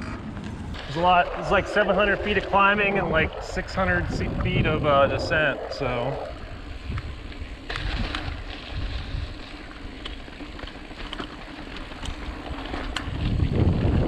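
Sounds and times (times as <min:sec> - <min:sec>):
bike tyres rolling over rock: 0:00.0 - 0:14.0
wind rumble on microphone: 0:00.0 - 0:14.0
bike clicks and rattles: 0:06.6 - 0:14.0.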